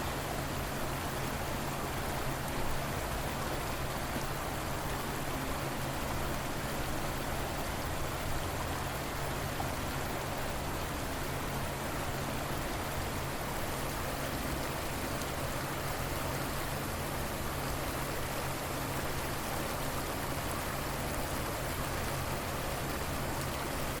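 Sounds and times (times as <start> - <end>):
river water flowing: 0.0 - 24.0.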